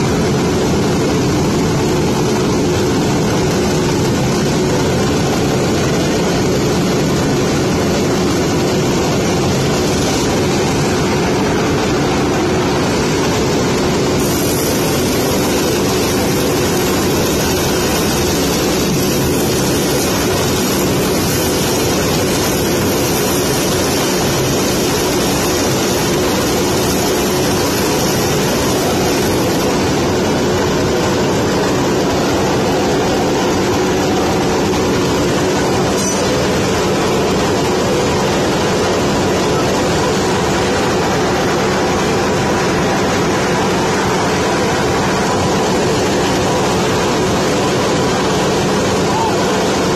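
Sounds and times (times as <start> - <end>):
constant hum: 0.0 - 49.9
loud mechanical roar: 0.0 - 49.9.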